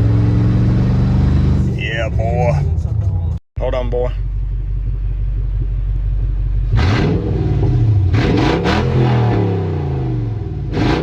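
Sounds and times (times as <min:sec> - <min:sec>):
car engine revving loudly: 0:00.0 - 0:02.4, 0:06.7 - 0:11.0
harsh exhaust blasts: 0:04.3 - 0:11.0.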